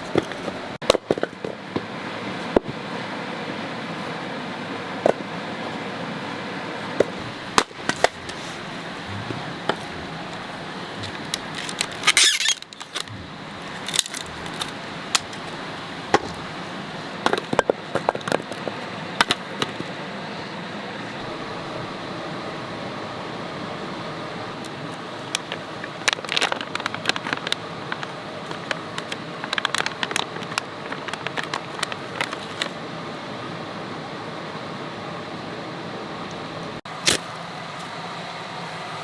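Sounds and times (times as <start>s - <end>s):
campfire crackling and popping: 7.1s - 16.7s, 24.6s - 32.8s.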